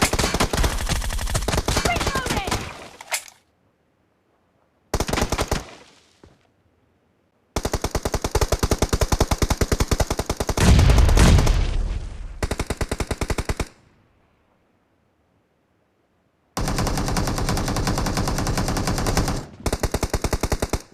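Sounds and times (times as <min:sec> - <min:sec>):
video game automatic gunfire: 0:00.0 - 0:02.8, 0:16.6 - 0:20.9.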